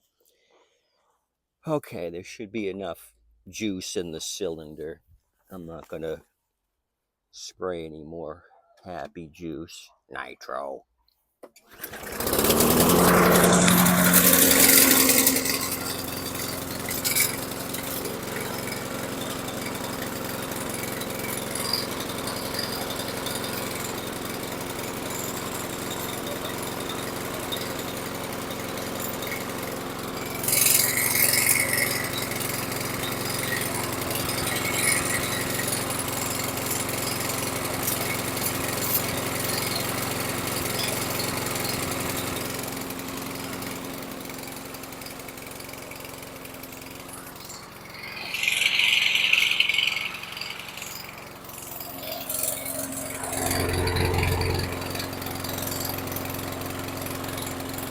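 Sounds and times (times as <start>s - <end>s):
lawn mower engine running: 11.7s - 57.9s.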